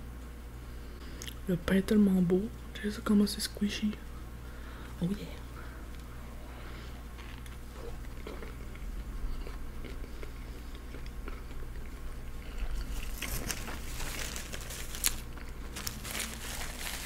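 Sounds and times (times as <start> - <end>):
wet chewing: 7.2 - 16.4
paper napkin crinkling: 12.8 - 17.0.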